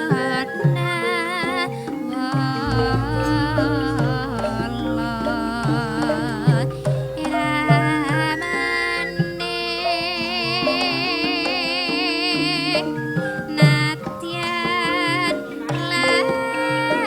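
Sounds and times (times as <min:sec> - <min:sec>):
person singing: 0:02.4 - 0:17.0
drum strokes: 0:02.6 - 0:10.8
metallophone tones: 0:02.6 - 0:13.4.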